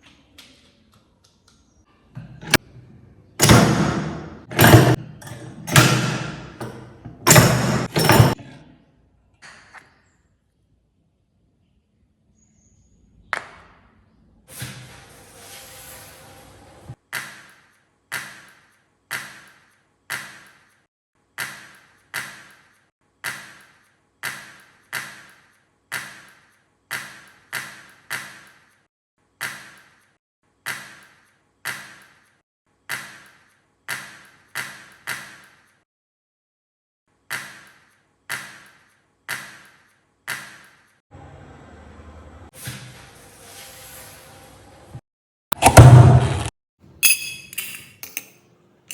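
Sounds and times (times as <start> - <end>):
metal press clacking with ring: 3.4 - 8.4, 47.0 - 48.4.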